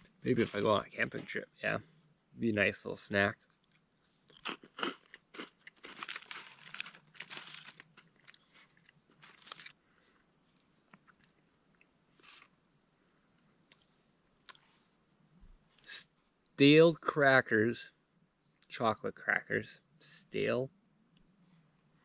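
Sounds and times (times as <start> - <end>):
crunching and chewing: 3.4 - 12.6, 13.7 - 14.7.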